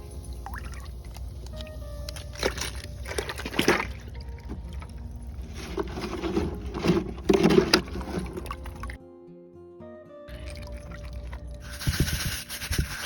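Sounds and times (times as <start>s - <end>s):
faint background music: 0.0s - 13.0s
water spraying and splashing: 10.4s - 13.0s.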